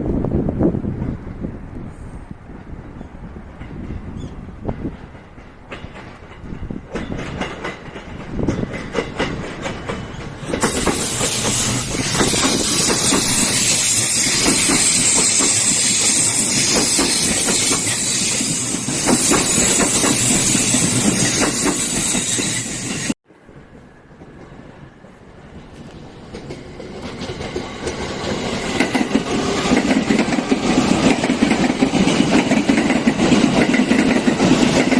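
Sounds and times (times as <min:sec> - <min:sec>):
train wheels clicking over rail joints: 0:03.4 - 0:34.9
train cars rushing hiss: 0:09.3 - 0:23.2, 0:25.1 - 0:34.9.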